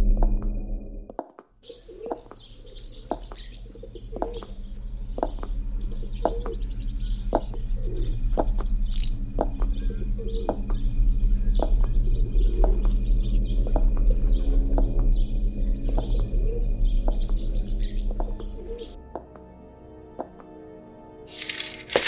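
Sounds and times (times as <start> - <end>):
steady low hum: 0.0 - 1.1, 2.0 - 19.0
birds chirping: 1.2 - 20.6
birds cooing: 1.6 - 19.0.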